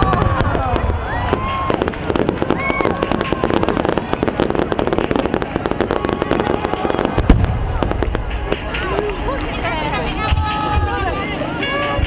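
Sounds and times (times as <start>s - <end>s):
firework shell bursts and pops: 0.0s - 9.5s.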